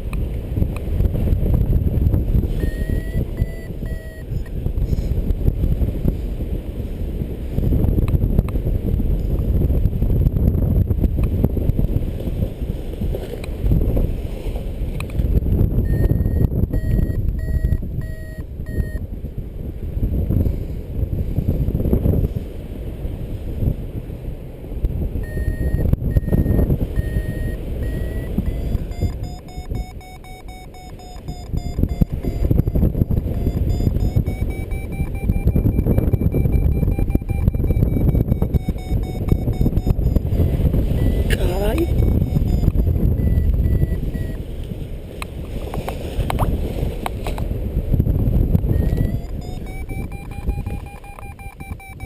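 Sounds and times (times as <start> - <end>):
wind buffeting microphone: 0.0 - 52.0
variometer short beeps: 2.4 - 4.6, 15.8 - 19.0, 25.2 - 44.4, 48.6 - 52.0.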